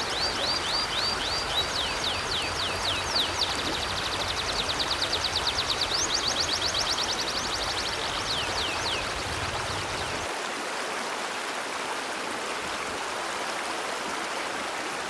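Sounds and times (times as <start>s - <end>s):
songbird singing: 0.0s - 10.3s
river water rushing: 0.0s - 15.0s.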